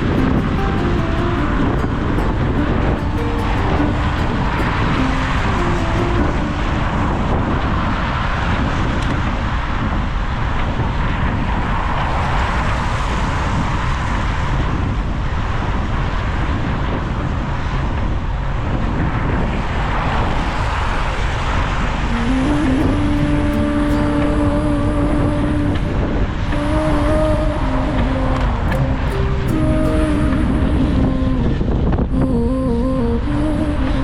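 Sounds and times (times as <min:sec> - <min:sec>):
steady tone: 0:00.0 - 0:08.6, 0:22.1 - 0:33.8
city traffic: 0:00.0 - 0:14.0, 0:19.7 - 0:32.2
wind rushing over camera: 0:03.8 - 0:29.1.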